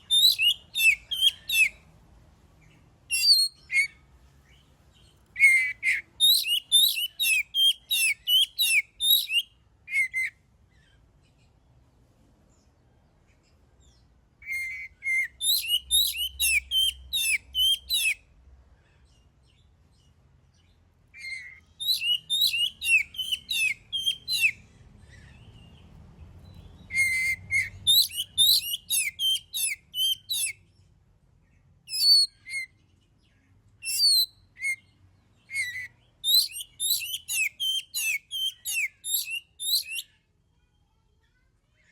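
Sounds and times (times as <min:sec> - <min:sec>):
songbird whistling: 0:00.0 - 0:01.8, 0:03.1 - 0:04.0, 0:05.4 - 0:10.4, 0:14.4 - 0:18.2, 0:21.2 - 0:25.4, 0:26.5 - 0:30.6, 0:31.9 - 0:32.8, 0:33.8 - 0:40.2.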